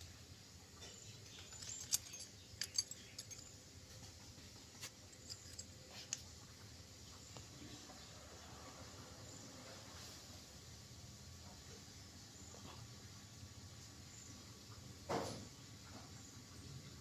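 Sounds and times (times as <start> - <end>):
light metallic clicks: 1.2 - 3.5, 4.8 - 6.2.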